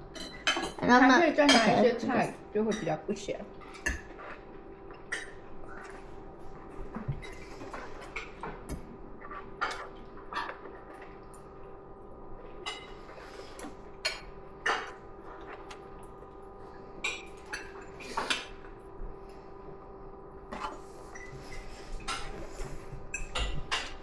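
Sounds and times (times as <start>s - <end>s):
cutlery clinking on plates: 0.1s - 0.8s, 1.4s - 1.8s, 20.6s - 24.0s.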